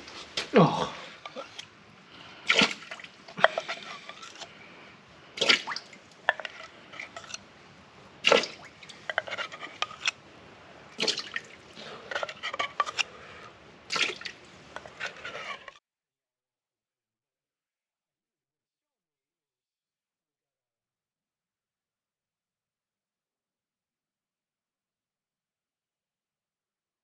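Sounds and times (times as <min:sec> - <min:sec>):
water dripping: 0:05.4 - 0:06.6, 0:11.0 - 0:11.7.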